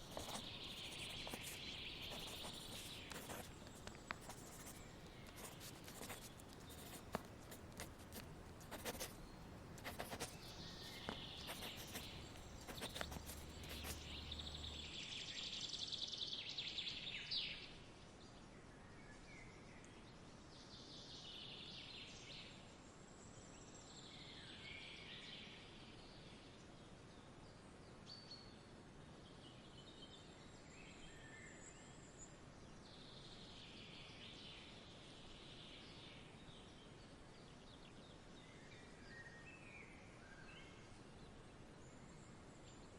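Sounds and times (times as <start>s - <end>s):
birds chirping: 0.0s - 15.0s
steady soft hiss: 0.0s - 15.0s.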